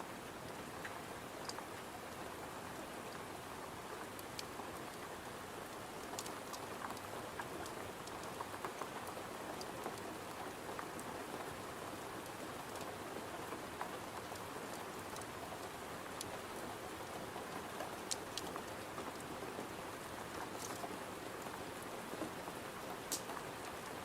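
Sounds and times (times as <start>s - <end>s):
rain pattering on a window: 0.1s - 24.0s
wood fire crackling and popping: 6.0s - 8.8s, 17.9s - 19.2s, 23.1s - 23.7s.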